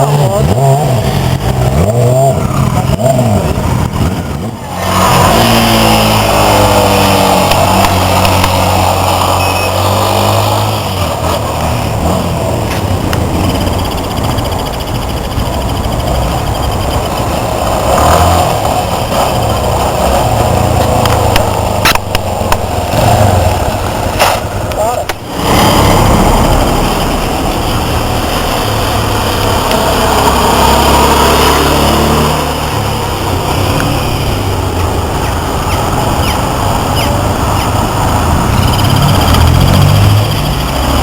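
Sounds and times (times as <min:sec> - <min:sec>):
motorcycle engines revving: 0:00.0 - 0:41.0
sharp clicks: 0:20.8 - 0:25.3.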